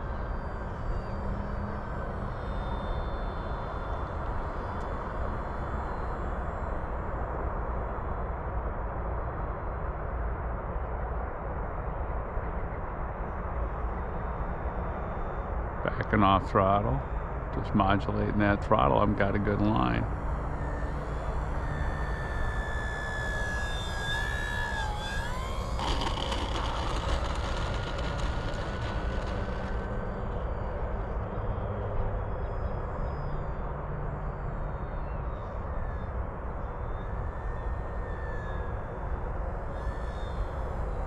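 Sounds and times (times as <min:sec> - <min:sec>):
model plane electric motor whine: 0:00.0 - 0:08.5, 0:18.8 - 0:41.0
steady low noise: 0:15.5 - 0:37.3.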